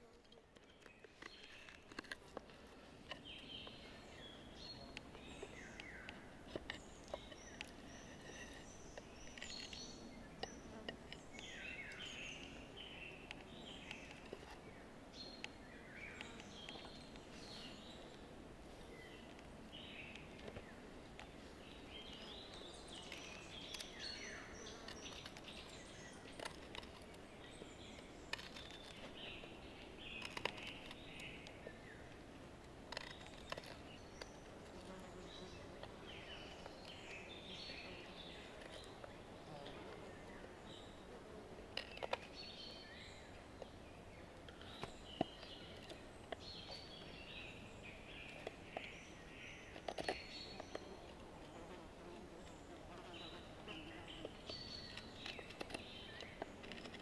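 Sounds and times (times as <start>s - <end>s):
songbirds singing: 0.0s - 57.0s
sharp small clicks: 30.2s - 31.6s.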